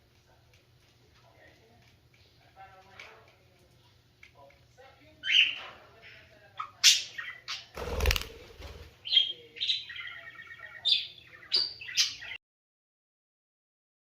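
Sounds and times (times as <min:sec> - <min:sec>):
birds chirping: 0:05.1 - 0:12.4.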